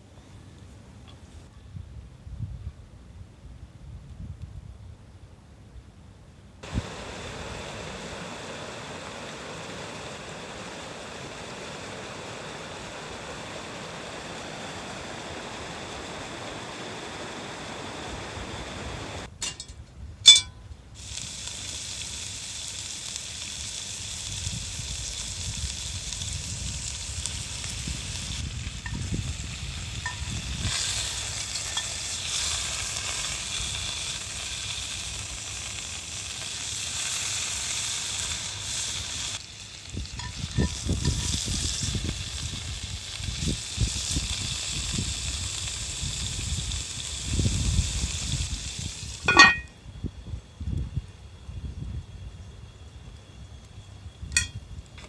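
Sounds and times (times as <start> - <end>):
meat sizzling in a pot: 6.6 - 19.7, 20.3 - 49.7, 54.2 - 54.7
metal clinks: 19.4 - 20.6, 49.3 - 49.7, 54.4 - 54.6.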